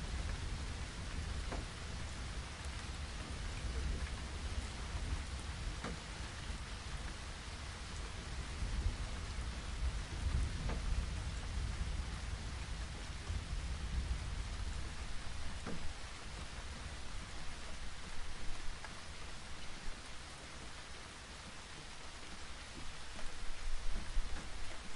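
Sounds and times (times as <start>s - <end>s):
distant thunder rumble: 0.0s - 18.3s
steady rain falling: 0.0s - 24.9s.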